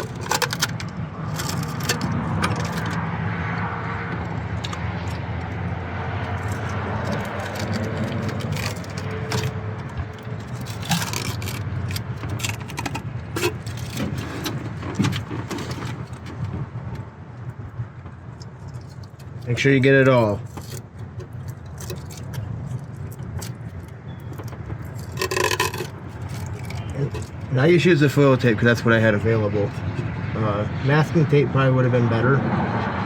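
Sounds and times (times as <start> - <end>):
foil tape crinkling and scraping: 0.0 - 3.0, 6.2 - 16.4, 18.4 - 27.5.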